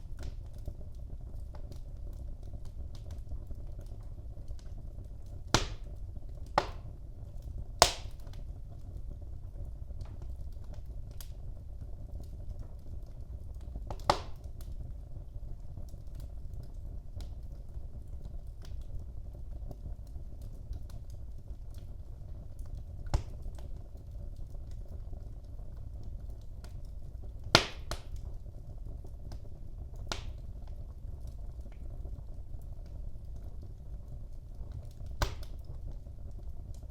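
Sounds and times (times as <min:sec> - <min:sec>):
fire popping: 0:00.0 - 0:36.9
wood fire crackling: 0:00.0 - 0:36.9.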